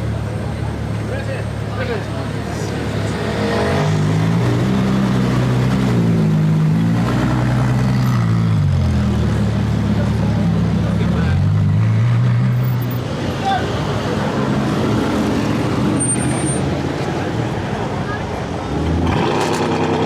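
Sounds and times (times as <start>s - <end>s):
car engine revving: 18.6s - 20.0s.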